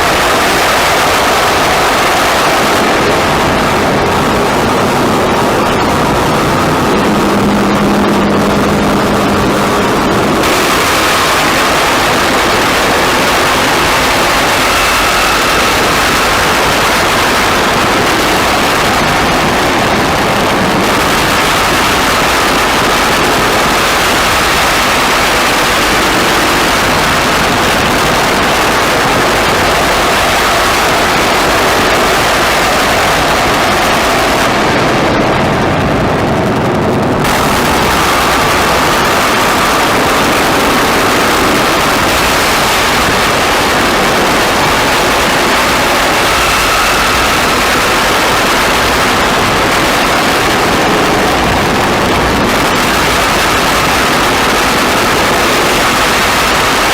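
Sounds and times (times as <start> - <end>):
wall of hissing noise: 0.0 - 56.9.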